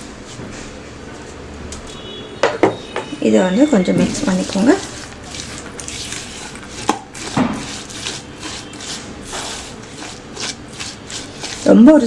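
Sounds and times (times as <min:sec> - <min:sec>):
spoon stirring in a bowl: 0:03.0 - 0:12.0.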